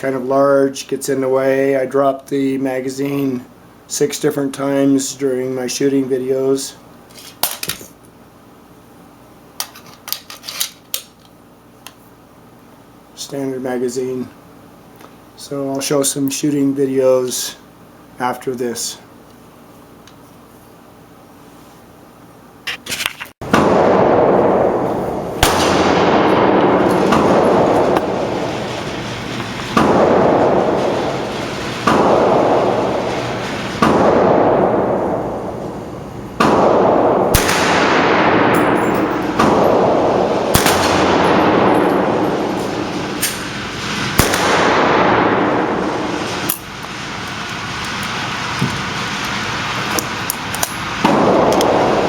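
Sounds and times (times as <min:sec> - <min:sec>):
pistol shots with echo: 0:23.5 - 0:28.8, 0:29.7 - 0:31.2, 0:33.8 - 0:35.6, 0:36.4 - 0:43.5, 0:44.2 - 0:46.3, 0:51.1 - 0:52.0.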